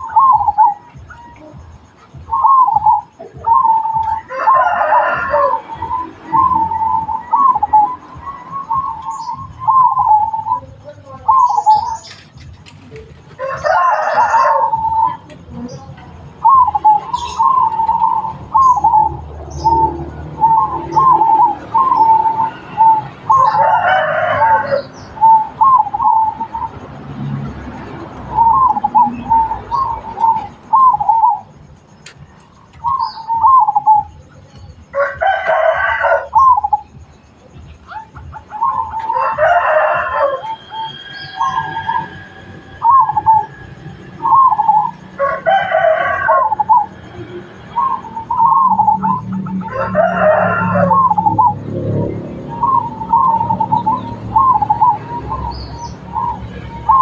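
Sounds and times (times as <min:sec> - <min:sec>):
dove cooing: 0:00.0 - 0:57.0
rooster crowing: 0:03.5 - 0:07.9, 0:13.4 - 0:15.2, 0:19.5 - 0:25.3, 0:34.9 - 0:36.8, 0:38.6 - 0:47.0, 0:47.8 - 0:54.8.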